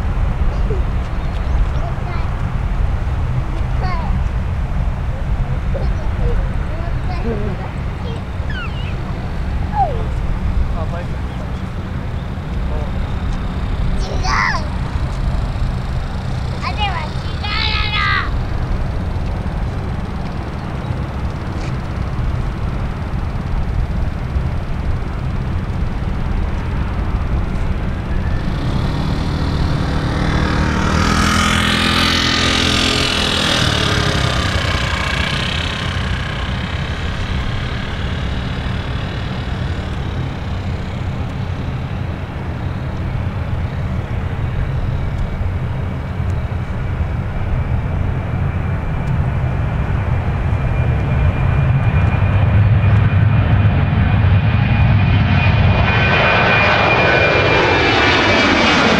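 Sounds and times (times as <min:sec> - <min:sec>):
jet engines whining: 0:00.0 - 0:58.9
outdoor rumble: 0:00.0 - 0:58.9
vehicle passing by: 0:28.1 - 0:41.6.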